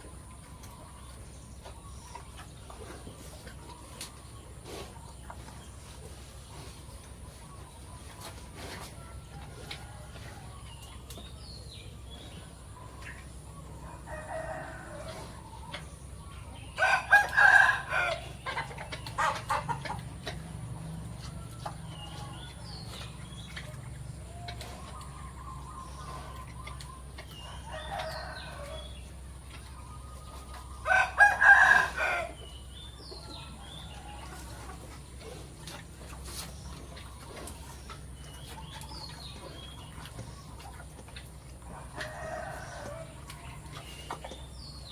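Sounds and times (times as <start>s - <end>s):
small birds chirping: 0.0s - 44.9s
chicken clucking: 12.6s - 32.4s
rooster crowing: 27.5s - 28.9s, 30.8s - 32.4s, 41.8s - 43.2s.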